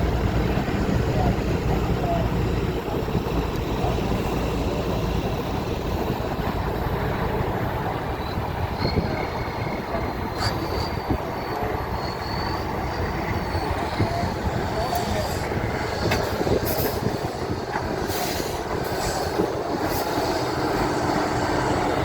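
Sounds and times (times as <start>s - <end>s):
truck engine rumbling: 0.0s - 22.0s
high squeal: 8.1s - 15.5s.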